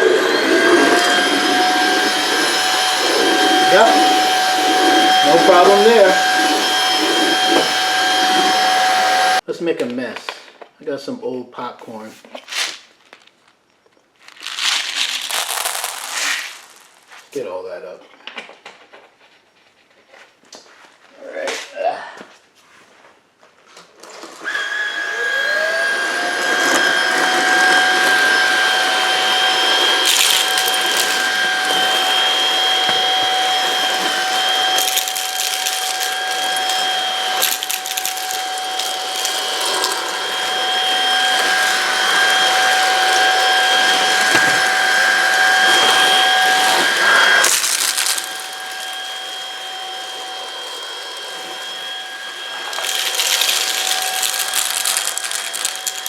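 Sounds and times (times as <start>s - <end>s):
stick vacuum whining: 0.0s - 9.4s, 24.0s - 56.0s.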